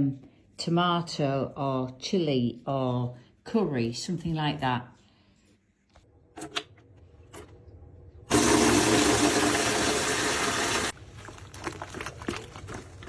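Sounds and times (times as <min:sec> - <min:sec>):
water running from a tap: 0:08.3 - 0:11.9.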